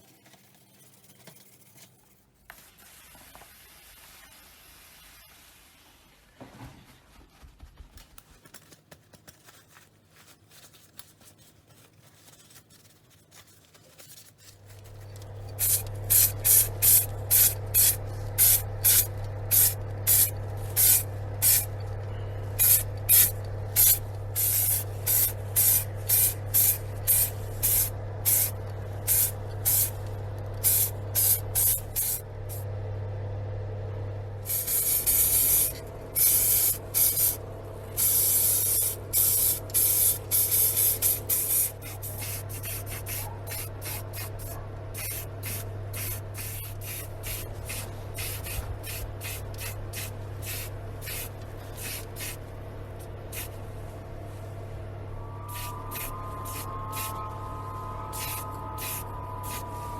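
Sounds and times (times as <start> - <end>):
air compressor humming: 14.5 - 59.9
airbrush spraying hiss: 15.6 - 21.7, 22.6 - 32.6, 34.5 - 37.4, 38.0 - 52.4, 53.3 - 53.6, 55.4 - 59.9.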